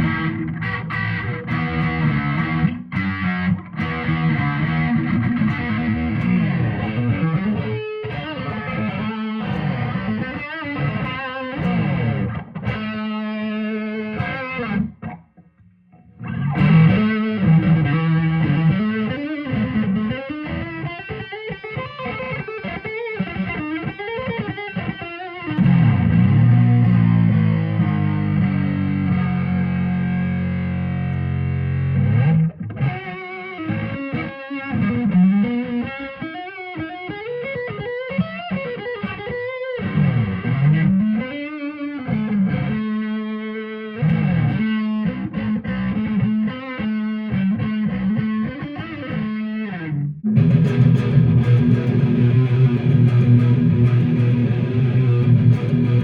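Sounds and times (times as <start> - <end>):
guitar riffs with string bends: 0.0 - 56.0
distorted electric guitar chord: 50.3 - 56.0.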